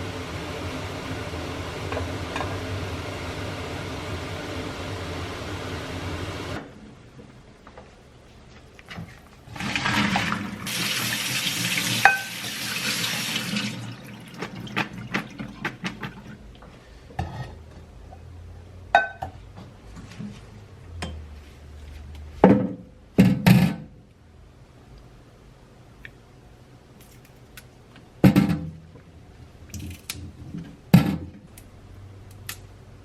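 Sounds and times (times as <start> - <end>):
water running and splashing: 9.5 - 16.4.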